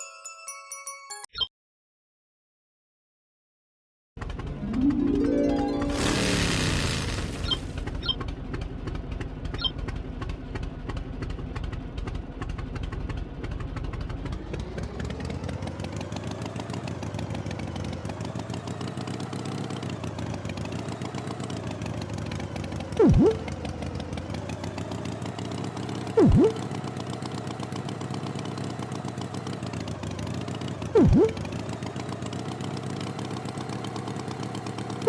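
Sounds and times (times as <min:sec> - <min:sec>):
tractor engine chugging: 0:07.3 - 0:35.0.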